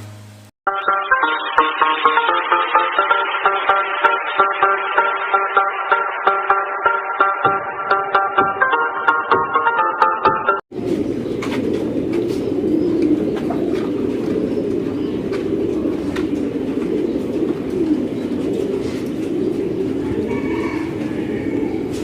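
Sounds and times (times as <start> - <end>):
pigeons cooing: 10.8 - 22.0.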